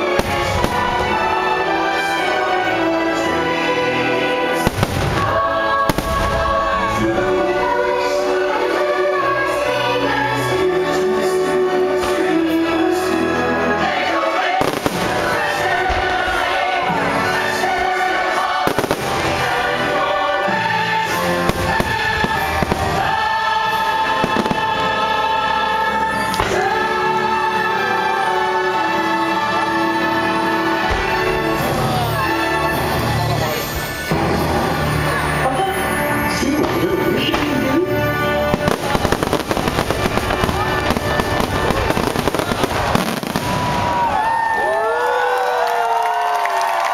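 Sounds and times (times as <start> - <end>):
fireworks bangs: 0.0 - 1.4, 4.6 - 7.0, 14.4 - 16.7, 17.8 - 20.2, 21.0 - 25.1, 38.4 - 44.4
choir holding long notes: 0.0 - 46.9
music playing: 0.0 - 46.9
orchestral soundtrack: 0.0 - 46.9.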